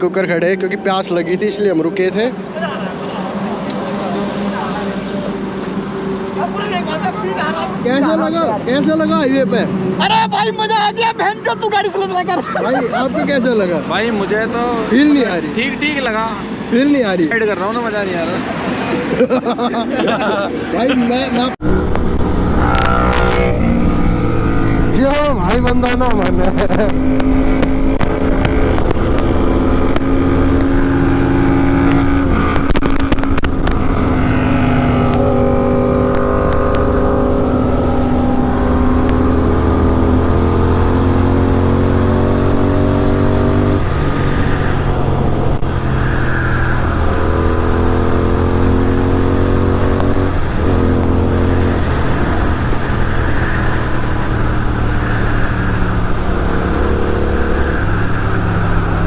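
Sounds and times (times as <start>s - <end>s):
motorcycle engine accelerating: 21.6s - 59.0s
wind noise: 21.6s - 59.0s.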